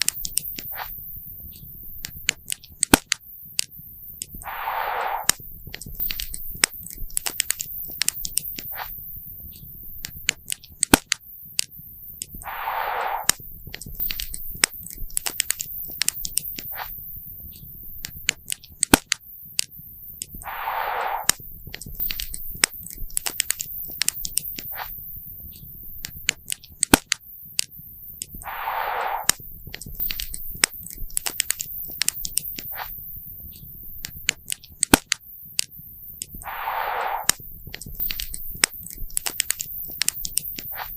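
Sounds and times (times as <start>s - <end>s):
short hissing rush: 4.4s - 5.4s, 12.4s - 13.4s, 20.4s - 21.4s, 28.4s - 29.4s, 36.4s - 37.5s.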